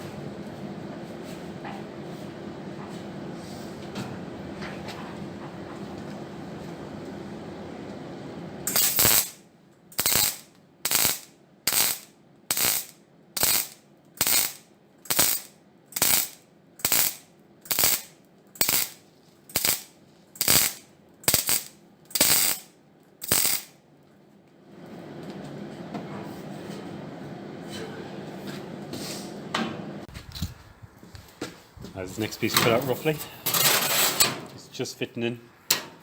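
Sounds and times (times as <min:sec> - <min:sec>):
metal-cutting tool on sheet steel: 0:32.4 - 0:34.4.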